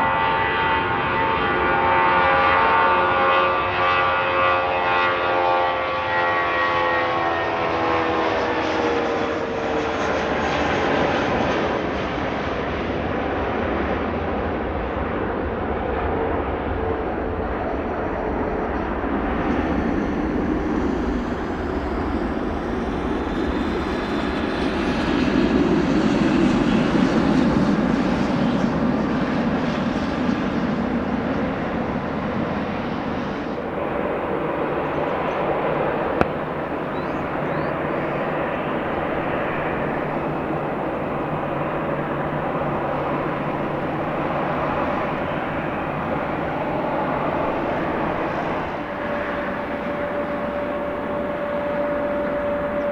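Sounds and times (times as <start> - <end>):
aircraft engines rushing: 0.0 - 52.9
faint rising whine: 27.4 - 52.9.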